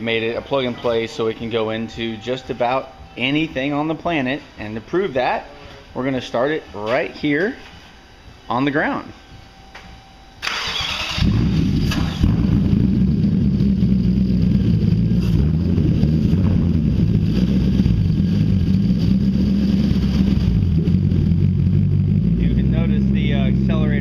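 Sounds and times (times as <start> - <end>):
car engine starting and idling: 10.4 - 24.0.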